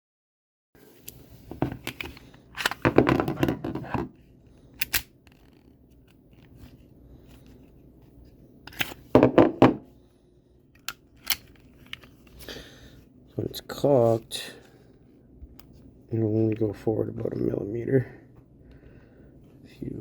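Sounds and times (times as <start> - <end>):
pistol slide clicking and clattering: 4.8 - 5.7, 10.8 - 12.1.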